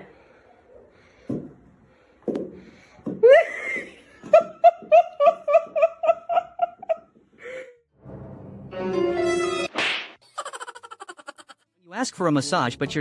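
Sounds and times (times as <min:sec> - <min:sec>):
person laughing: 0:10.2 - 0:11.6.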